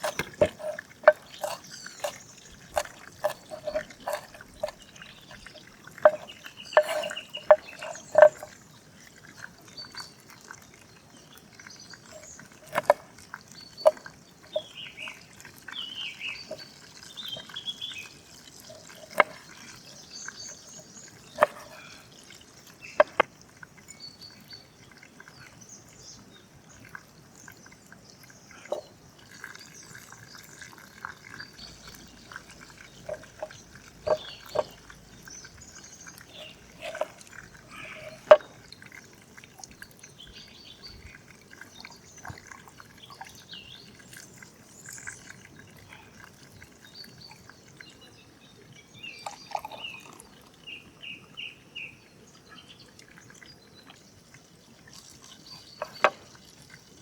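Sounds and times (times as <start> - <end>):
food preparation knocks and clinks: 0.0 - 8.6, 12.6 - 13.0, 13.8 - 14.6, 18.8 - 19.5, 21.3 - 21.9, 23.0 - 23.3, 31.8 - 34.9, 36.2 - 38.6, 55.8 - 56.3.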